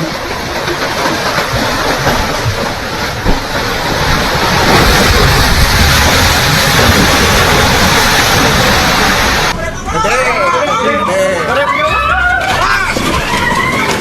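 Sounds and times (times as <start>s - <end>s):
loud rushing roar: 2.7s - 9.8s.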